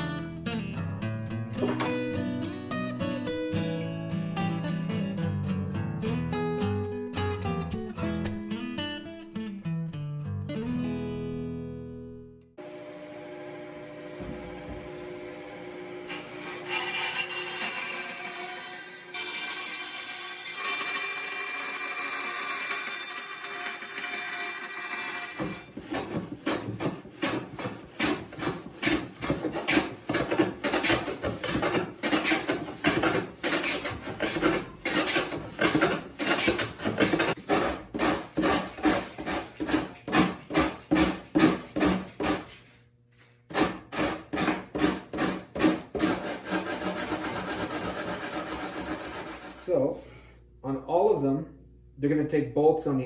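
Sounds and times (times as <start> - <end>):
hand tool working wood: 25.2 - 42.8, 43.5 - 50.0.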